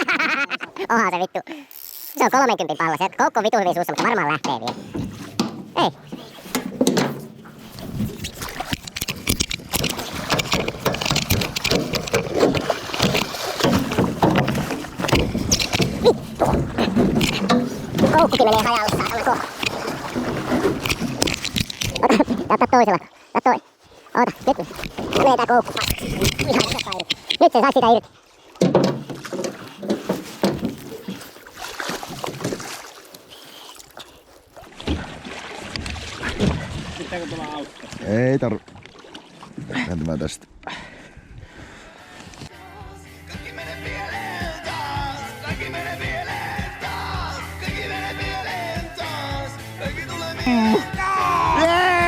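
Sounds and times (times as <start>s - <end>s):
sharp knocks against boat: 4.7s - 7.6s, 9.8s - 21.4s, 28.6s - 32.7s
water splashing: 4.8s - 40.0s.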